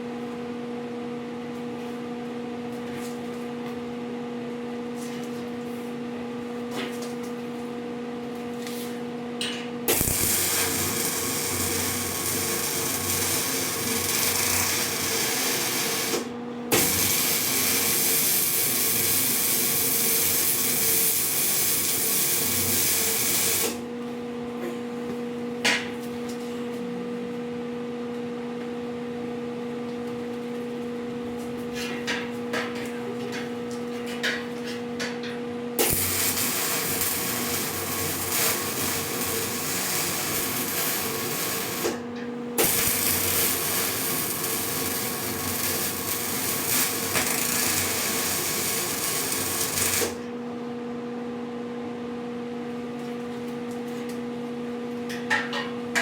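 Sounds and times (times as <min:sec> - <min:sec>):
welding arc crackling and hissing: 0:09.9 - 0:23.8, 0:35.8 - 0:42.0, 0:42.6 - 0:50.2
welder hum: 0:09.9 - 0:23.9, 0:35.8 - 0:50.3.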